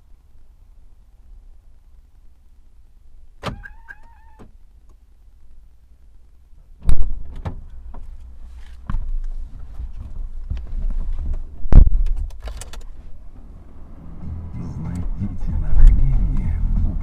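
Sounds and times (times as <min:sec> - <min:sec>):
low engine rumble: 0:00.0 - 0:17.0
loud thump: 0:06.8 - 0:07.6, 0:11.7 - 0:12.3.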